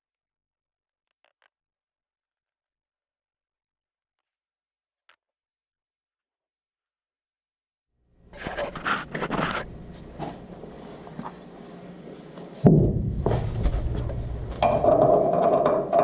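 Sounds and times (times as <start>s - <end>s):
steady hum: 8.2s - 16.0s
heavy thump: 12.6s - 15.3s
low rumble: 12.7s - 15.1s
tools clanking on metal: 13.2s - 16.0s.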